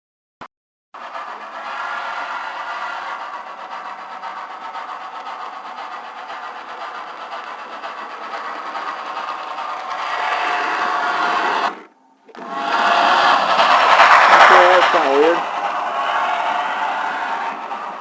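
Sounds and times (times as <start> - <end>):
model train whirring on track: 1.0 - 18.0.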